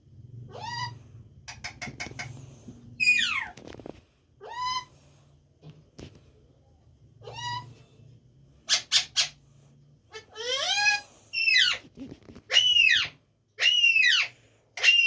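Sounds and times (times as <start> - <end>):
parrot calling: 0.5 - 2.4, 3.0 - 3.6, 7.2 - 7.8, 8.7 - 9.4, 10.1 - 11.8, 12.5 - 15.0.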